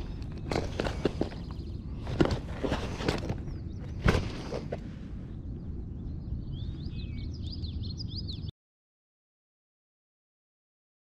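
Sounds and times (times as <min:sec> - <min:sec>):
songbird chirping: 0:00.0 - 0:08.5
steady low rumble: 0:00.0 - 0:08.5.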